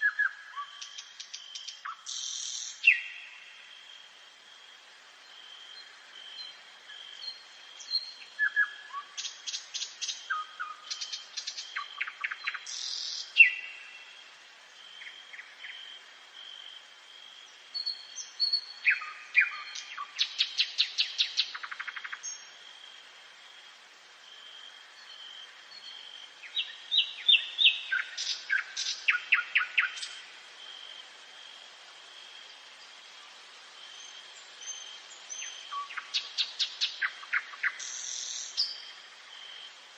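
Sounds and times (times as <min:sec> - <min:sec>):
nightingale singing: 0:00.0 - 0:03.9, 0:05.2 - 0:14.2, 0:17.4 - 0:22.6, 0:24.9 - 0:30.3, 0:33.8 - 0:39.7.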